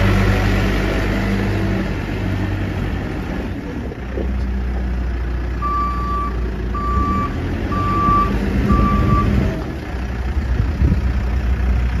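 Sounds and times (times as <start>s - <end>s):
diesel engine running: 0.0s - 12.0s
backup alarm beeping: 5.6s - 9.4s.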